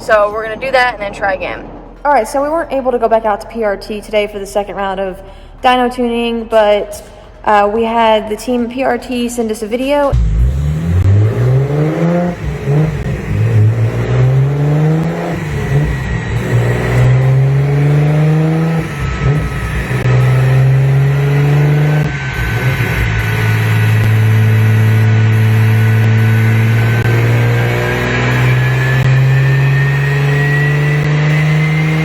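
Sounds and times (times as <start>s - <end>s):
car engine revving: 9.1s - 32.0s
turbo whistle: 11.3s - 32.0s.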